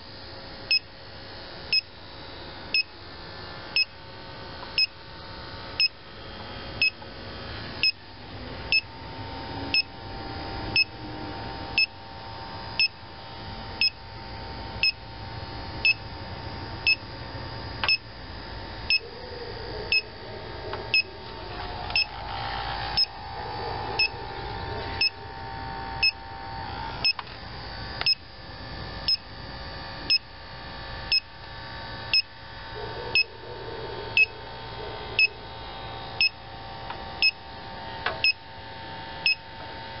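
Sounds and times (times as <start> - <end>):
leak detector beeping: 0.7 - 0.9, 1.7 - 1.9, 2.7 - 2.9, 3.8 - 4.0, 4.8 - 5.0, 5.8 - 6.0, 6.8 - 7.0, 7.8 - 8.0, 8.7 - 8.9, 9.7 - 10.0, 10.7 - 11.0, 11.7 - 12.0, 12.8 - 13.2, 13.8 - 14.1, 14.8 - 16.2, 16.8 - 17.1, 17.8 - 18.1, 18.8 - 19.1, 19.9 - 27.4, 28.0 - 28.3, 29.0 - 29.3, 30.1 - 30.3, 31.1 - 31.3, 32.1 - 32.3, 34.2 - 34.4, 35.2 - 35.4, 36.2 - 36.4, 37.2 - 37.4, 38.2 - 38.4, 39.2 - 39.5.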